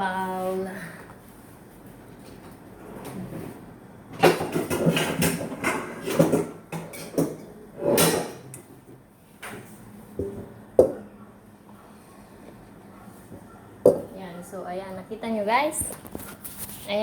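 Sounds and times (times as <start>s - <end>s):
dishes clattering: 4.2s - 8.6s.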